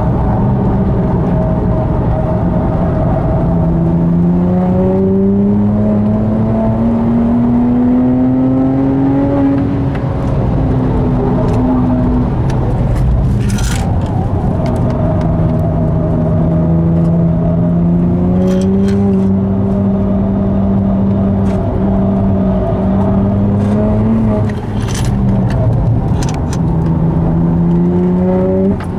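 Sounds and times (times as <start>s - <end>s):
car engine accelerating: 0.0s - 28.9s.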